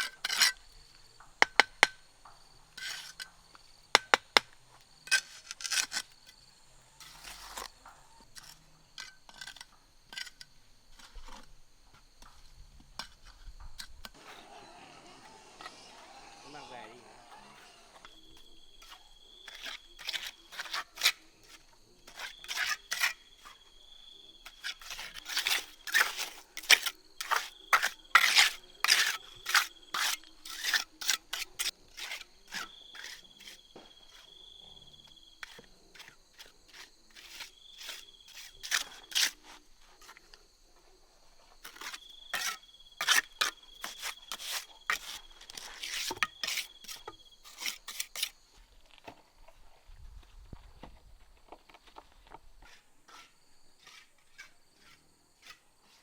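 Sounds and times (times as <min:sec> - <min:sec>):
sharp clicks and scrapes: 0:05.1 - 0:06.2, 0:41.6 - 0:48.4.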